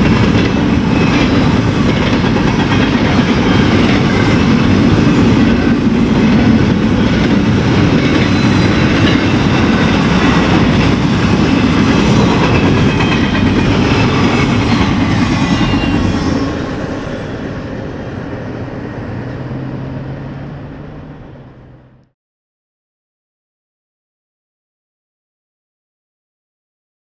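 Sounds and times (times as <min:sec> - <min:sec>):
freight train cars rumbling past: 0:00.0 - 0:22.1.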